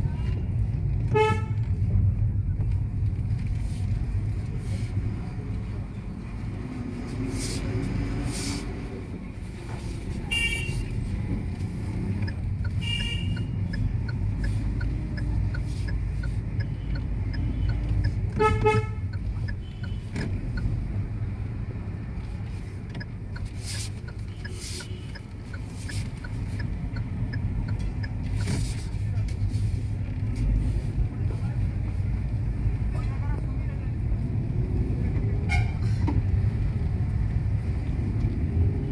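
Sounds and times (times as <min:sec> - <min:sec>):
road vehicle rumble: 0:00.0 - 0:38.9
vehicle horn toots: 0:01.1 - 0:01.6, 0:12.8 - 0:13.5, 0:18.4 - 0:20.0
faint regular ticking: 0:11.4 - 0:18.4, 0:19.0 - 0:28.6.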